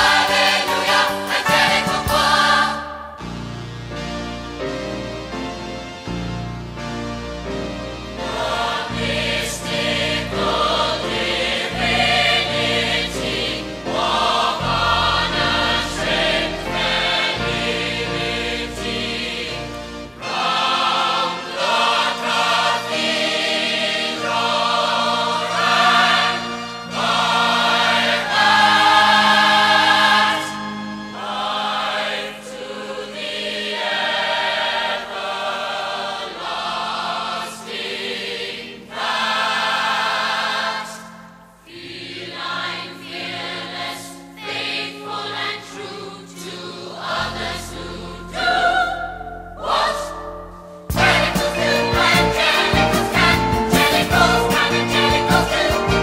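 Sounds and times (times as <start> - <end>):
choir singing: 0.0 - 3.8, 8.2 - 56.0
orchestral backing: 0.0 - 38.1, 41.5 - 56.0.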